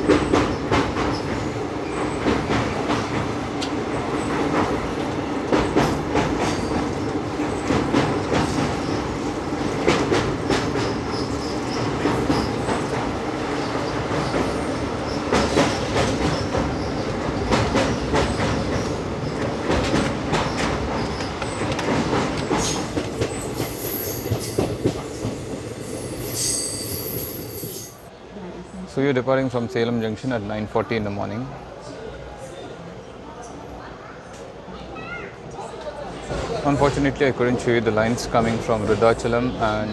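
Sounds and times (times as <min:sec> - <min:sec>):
train wheels clickety-clack: 0:00.0 - 0:27.8, 0:35.8 - 0:39.8.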